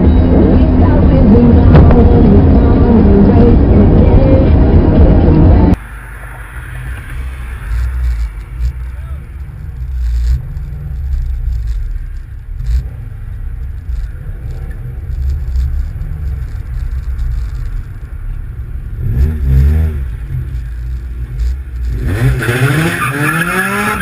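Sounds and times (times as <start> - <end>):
car road noise rumble: 0.0 - 24.0
engine revving: 6.7 - 24.0.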